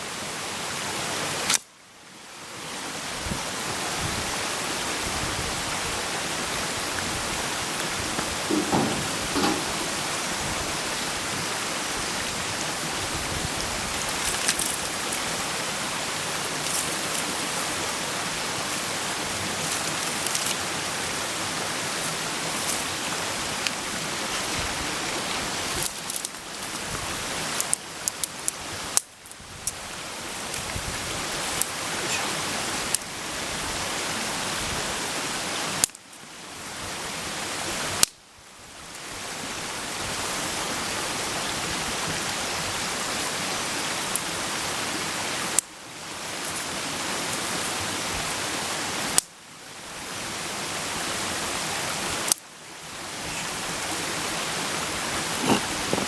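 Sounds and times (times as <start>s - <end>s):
campfire hiss: 0.0s - 56.0s
fire crackles and pops: 25.4s - 26.9s, 27.5s - 30.7s.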